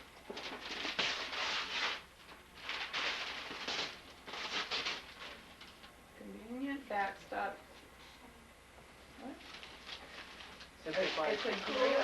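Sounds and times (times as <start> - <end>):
wrapping paper tearing: 0.3 - 5.9, 9.4 - 12.0.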